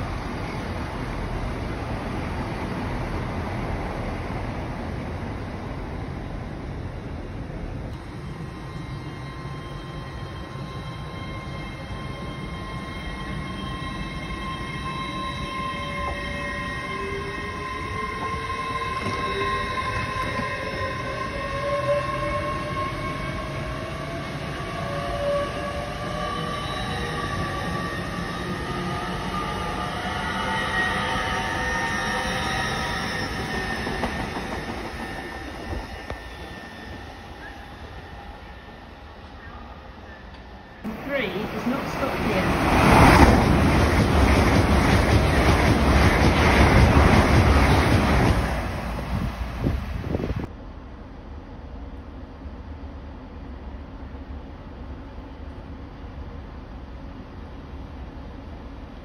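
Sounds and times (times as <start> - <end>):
high train whine: 0.0 - 59.0
train wheels rumbling on rails: 7.2 - 38.4, 40.3 - 50.6.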